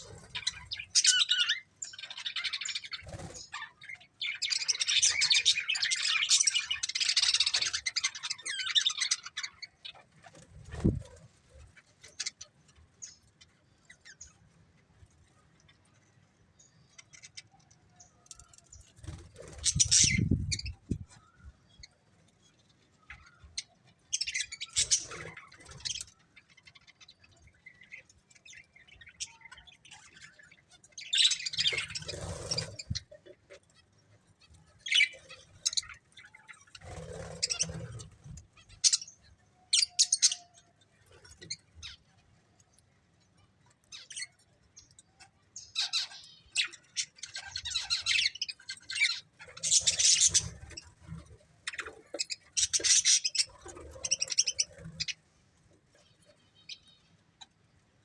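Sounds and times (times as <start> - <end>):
budgerigars chirping: 0.0 - 10.0, 19.1 - 20.8, 45.6 - 51.0, 51.6 - 55.2.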